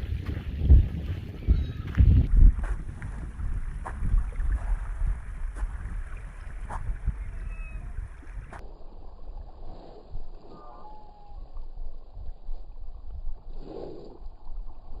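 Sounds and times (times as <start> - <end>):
wind buffeting microphone: 0.0 - 13.6
gulls calling: 1.1 - 2.2, 6.0 - 8.6, 10.4 - 11.8.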